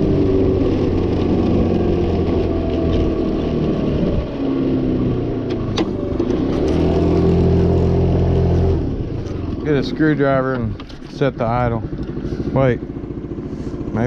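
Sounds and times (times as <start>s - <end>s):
scooter engine idling: 7.9s - 14.0s.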